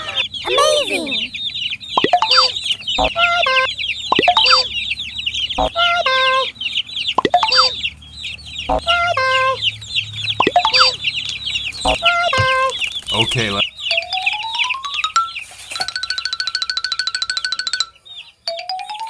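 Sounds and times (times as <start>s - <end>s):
sliding bird call: 0.0s - 7.9s, 8.6s - 17.9s
chicks peeping: 0.0s - 19.0s.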